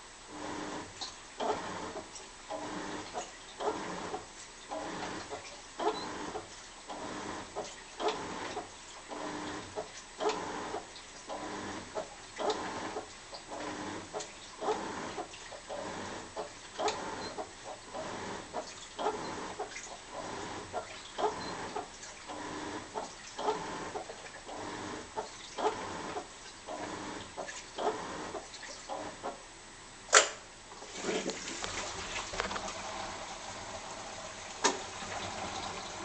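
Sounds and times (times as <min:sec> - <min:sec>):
washing machine agitating: 0:00.0 - 0:29.4, 0:30.7 - 0:36.0
sharp click: 0:30.1 - 0:30.4.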